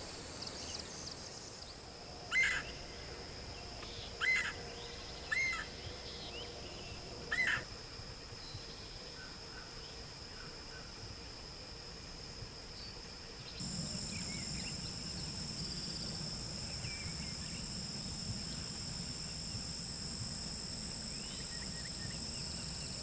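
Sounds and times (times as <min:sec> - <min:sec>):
high-pitched insect drone: 0:00.0 - 0:09.7, 0:13.5 - 0:23.0.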